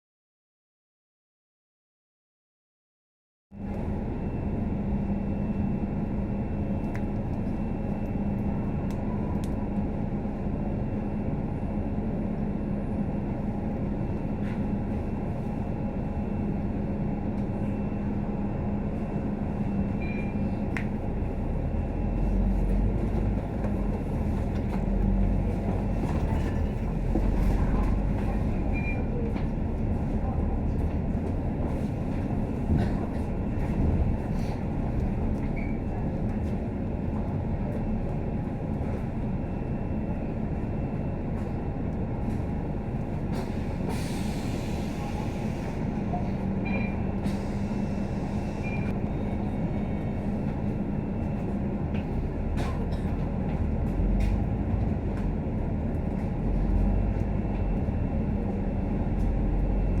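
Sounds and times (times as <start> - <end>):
bus engine and road rumble: 3.6 - 60.0
bus hiss: 43.4 - 46.0.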